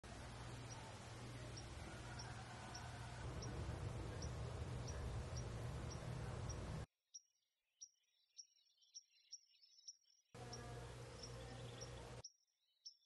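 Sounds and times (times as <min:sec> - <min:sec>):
rumbling background noise: 0:00.0 - 0:06.9.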